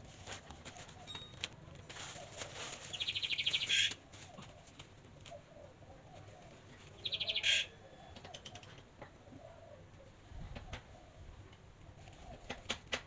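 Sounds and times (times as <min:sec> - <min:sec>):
bird chirping: 0:02.9 - 0:03.9, 0:07.0 - 0:08.1.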